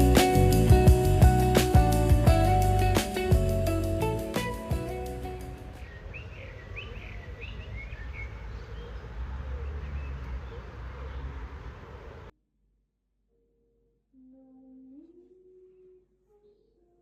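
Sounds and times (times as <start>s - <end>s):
low rumble of outdoor noise: 0.0s - 12.3s
small birds chirping: 5.7s - 12.3s.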